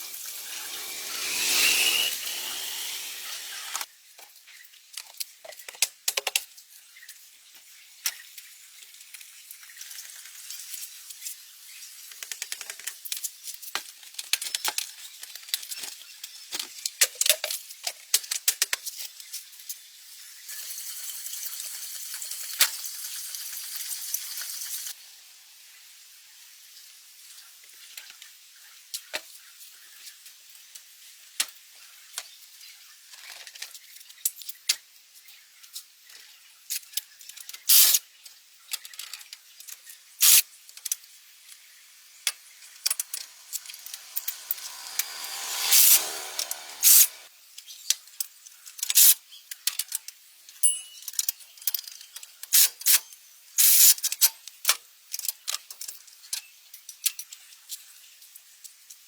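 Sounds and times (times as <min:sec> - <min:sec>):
hissing spray: 0:00.0 - 0:03.8, 0:42.6 - 0:47.3.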